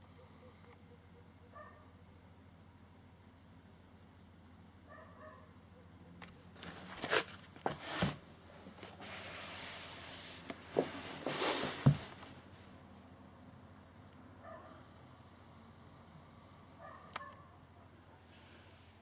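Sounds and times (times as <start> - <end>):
packaging rubbing and rustling: 6.6 - 8.2.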